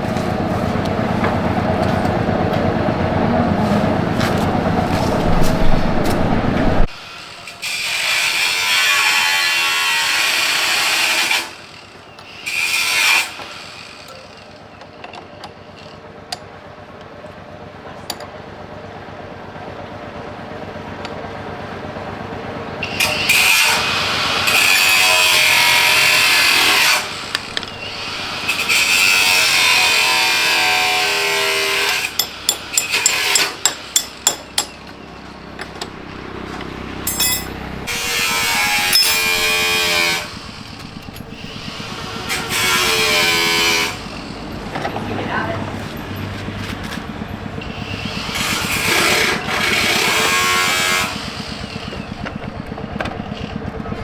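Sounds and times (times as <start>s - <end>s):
power tool motor running: 22.8s - 35.0s, 35.8s - 44.7s, 46.3s - 54.0s
hand tools clattering on metal: 36.6s - 37.7s, 38.7s - 39.6s.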